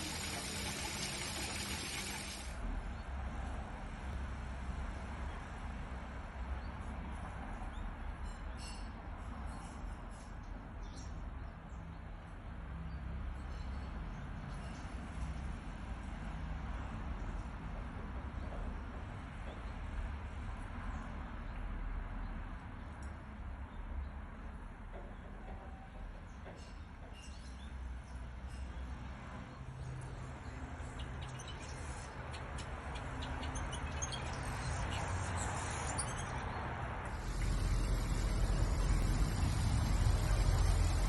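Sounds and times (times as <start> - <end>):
small birds chirping: 29.8 - 41.0
low rumble and hiss: 37.1 - 41.0.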